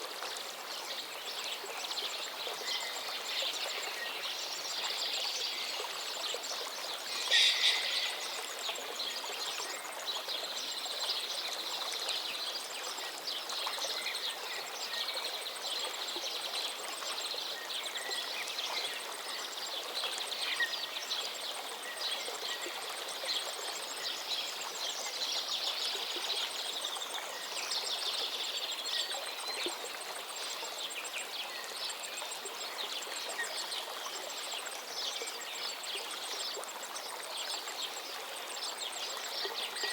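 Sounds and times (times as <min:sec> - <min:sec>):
stream rushing: 0:06.6 - 0:09.8
birds singing and chirping: 0:07.1 - 0:08.5.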